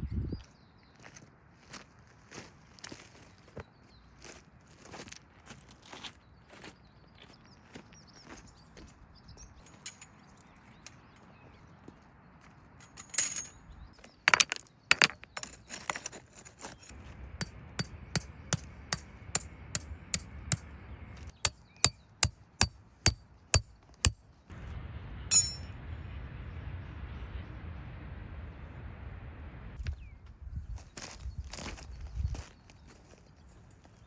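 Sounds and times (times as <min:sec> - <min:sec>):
sharp knocks and clinks: 0:12.8 - 0:13.6, 0:25.3 - 0:25.7.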